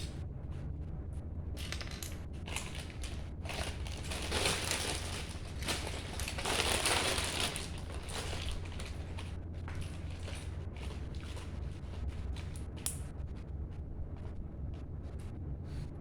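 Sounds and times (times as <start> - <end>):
plastic toy bricks rattling: 1.6 - 11.5
rustling: 1.6 - 13.0.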